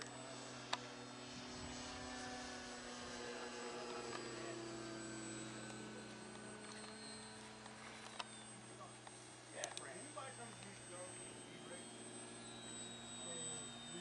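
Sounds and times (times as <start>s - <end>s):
model airplane motor whining: 0.0s - 14.0s.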